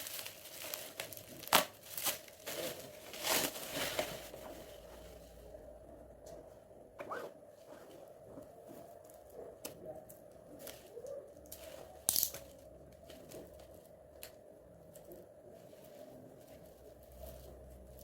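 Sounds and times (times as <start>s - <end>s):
packaging ripping: 0.0s - 4.3s
packaging rustling and crinkling: 0.0s - 5.5s.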